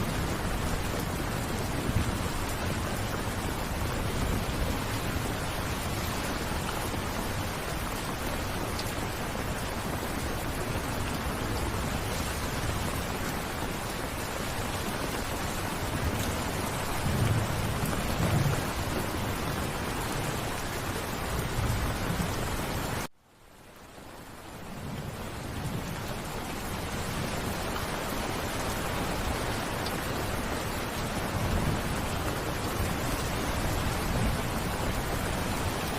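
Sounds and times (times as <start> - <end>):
steady rain: 0.0 - 35.9
distant thunder rumbles: 15.4 - 23.0.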